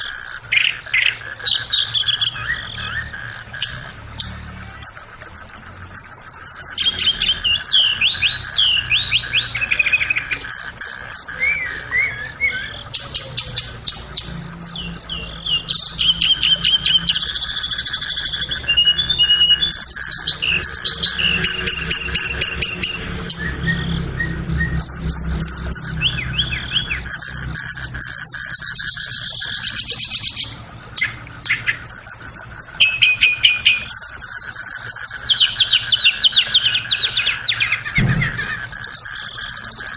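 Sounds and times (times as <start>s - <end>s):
bird song with whistles and trills: 0.0s - 39.9s
faint steady drone: 0.0s - 39.9s.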